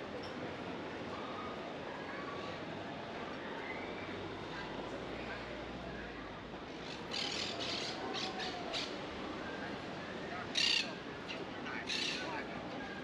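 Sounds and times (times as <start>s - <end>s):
busy street murmur: 0.0s - 13.0s
harsh bird squawks: 10.6s - 10.8s.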